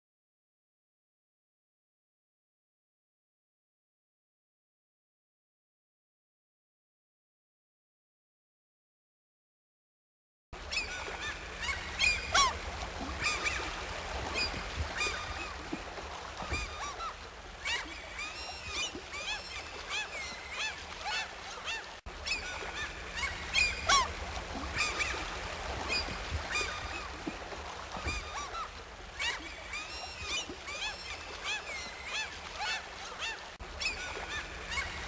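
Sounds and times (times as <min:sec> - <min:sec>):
many birds calling: 0:10.7 - 0:35.0.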